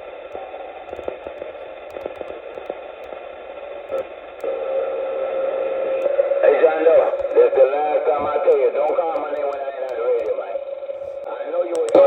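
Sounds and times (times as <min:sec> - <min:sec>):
faint clicks: 0:00.0 - 0:03.2, 0:03.8 - 0:04.6, 0:07.1 - 0:12.0
radio static hiss: 0:00.0 - 0:12.0.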